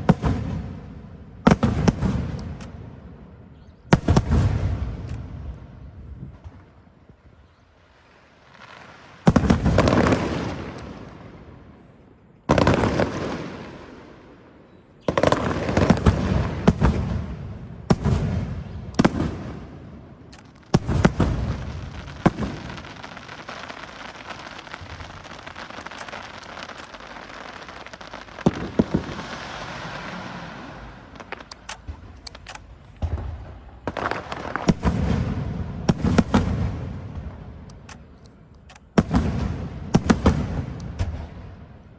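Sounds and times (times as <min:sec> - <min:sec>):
fireworks bursting: 0:15.1 - 0:41.9
fireworks crackling: 0:15.2 - 0:41.9
quick sharp firework pops: 0:24.7 - 0:27.1.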